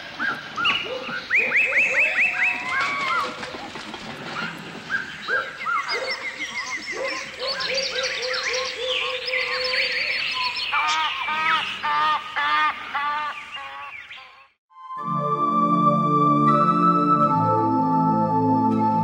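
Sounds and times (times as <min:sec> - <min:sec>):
birds singing and calling: 0:00.1 - 0:03.3, 0:04.4 - 0:14.6.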